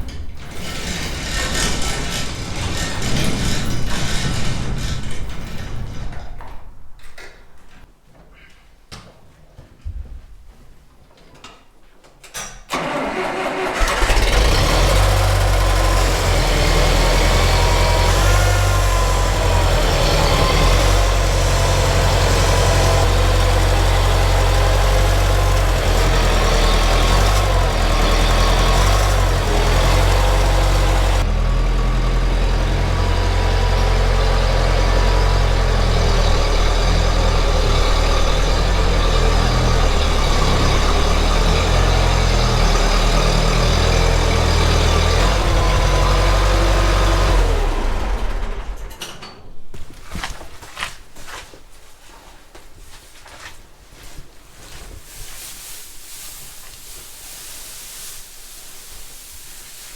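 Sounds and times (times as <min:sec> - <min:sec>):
engine starting and running: 0:00.0 - 0:06.4, 0:12.7 - 0:49.4.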